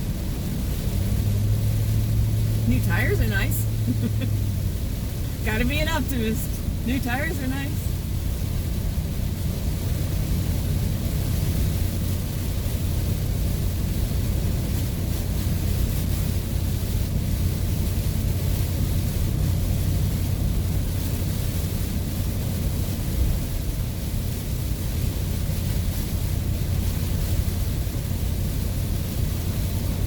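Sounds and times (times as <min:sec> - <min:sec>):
engine and tyres drone: 0:00.0 - 0:21.2
rain and spray hiss: 0:00.0 - 0:30.0.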